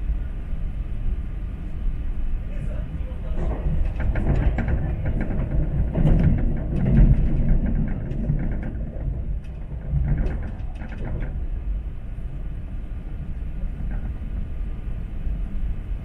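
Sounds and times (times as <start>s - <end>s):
train interior rumble: 0.0s - 16.0s
light clicks and rattles: 3.3s - 11.8s, 13.2s - 14.6s.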